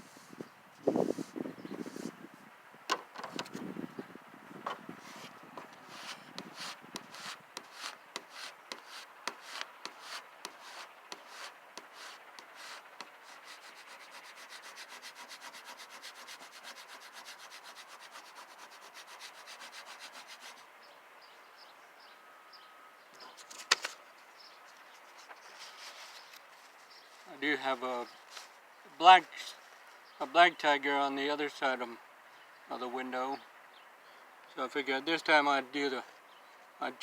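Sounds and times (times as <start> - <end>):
tape rubbed on window glass: 0.8 - 2.2, 5.0 - 20.6.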